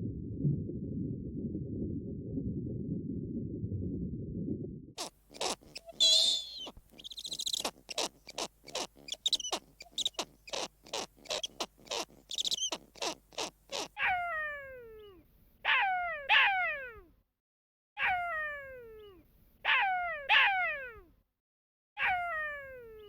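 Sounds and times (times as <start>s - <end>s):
high chirping and trilling calls: 5.0s - 13.9s.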